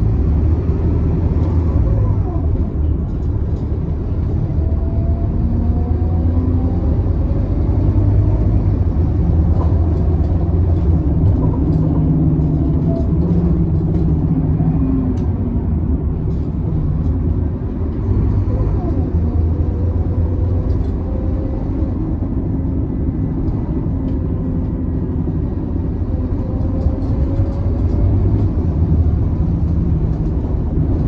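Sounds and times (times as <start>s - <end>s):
bus body rattling: 0.0s - 31.0s
bus engine droning: 0.0s - 31.0s.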